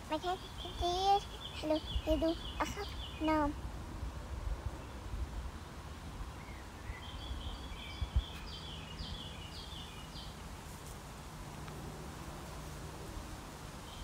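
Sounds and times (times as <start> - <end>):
songbird chirping: 0.0 - 3.7, 4.6 - 10.6
low outdoor rumble: 0.0 - 14.0.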